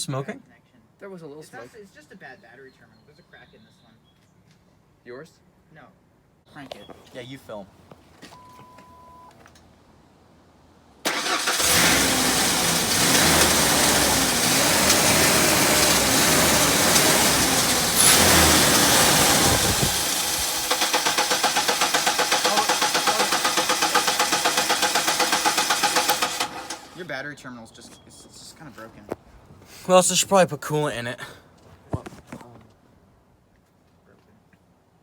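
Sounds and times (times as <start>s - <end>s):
engine running unevenly: 11.1s - 27.0s
starter motor cranking: 11.1s - 27.0s.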